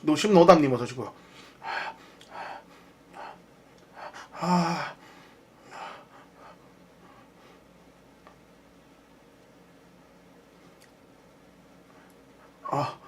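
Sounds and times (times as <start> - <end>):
man breathing heavily: 1.2 - 7.7
man groaning: 4.3 - 5.0, 12.6 - 13.0.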